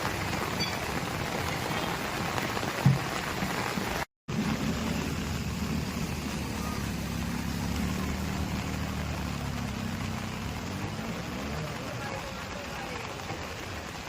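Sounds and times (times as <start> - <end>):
heavy rain hissing: 0.0 - 14.0
vehicle engine running: 4.3 - 13.2.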